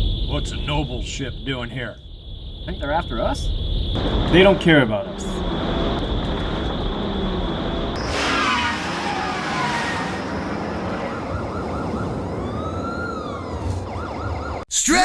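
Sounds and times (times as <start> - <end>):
steady rumble: 0.0 - 8.1
siren-like arcs: 2.2 - 14.3.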